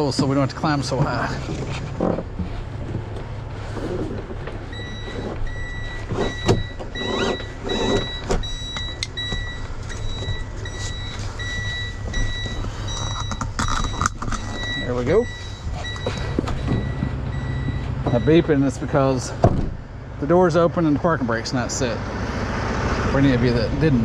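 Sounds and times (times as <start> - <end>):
steady low rumble: 0.0 - 24.0
warning chime beeping: 4.7 - 19.3.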